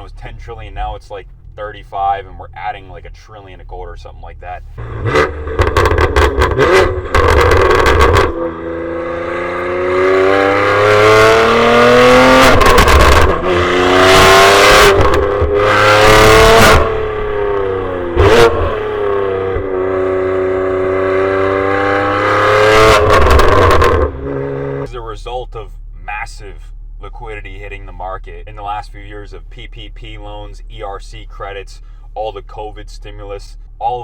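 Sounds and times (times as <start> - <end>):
car engine revving through gears: 4.8 - 24.9
sharp exhaust crack: 4.8 - 27.1.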